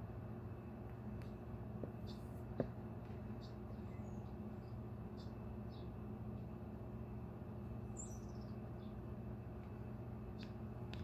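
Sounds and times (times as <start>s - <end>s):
steady low hum: 0.0s - 11.0s
birds chirping: 1.0s - 11.0s.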